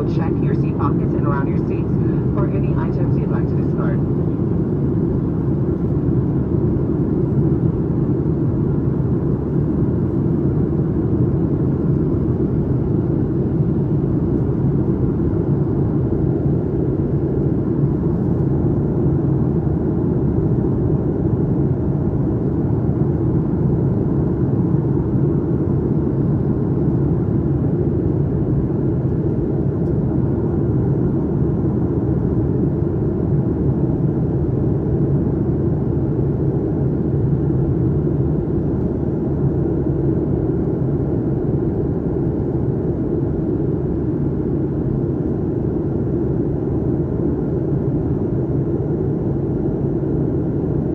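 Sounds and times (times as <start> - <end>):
airliner cabin rumble: 0.0 - 18.9.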